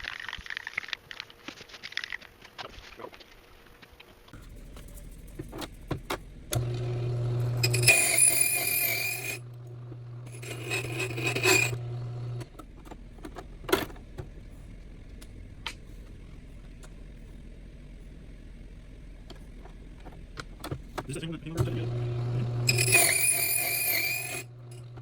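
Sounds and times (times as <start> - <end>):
electric motor humming: 4.4 - 25.0
metal grinding against cutter: 6.5 - 12.5, 21.1 - 25.0.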